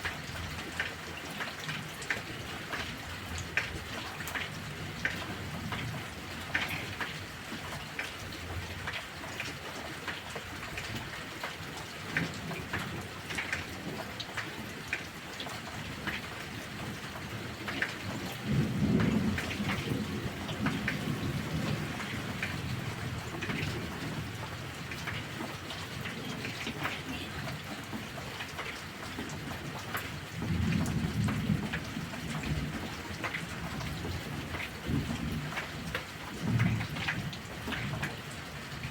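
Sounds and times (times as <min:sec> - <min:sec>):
heavy rain falling: 0:00.0 - 0:38.9
low thunder rolling: 0:18.2 - 0:24.5.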